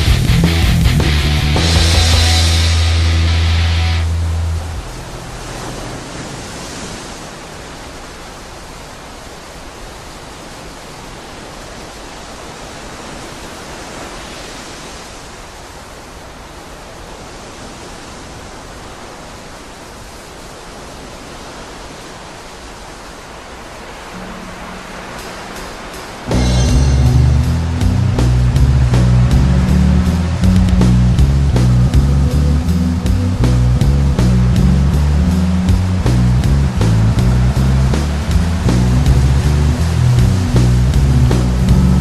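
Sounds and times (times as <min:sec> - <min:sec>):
heavy metal band playing: 0:00.0 - 0:04.9, 0:24.2 - 0:42.0
steady rushing noise: 0:00.0 - 0:42.0.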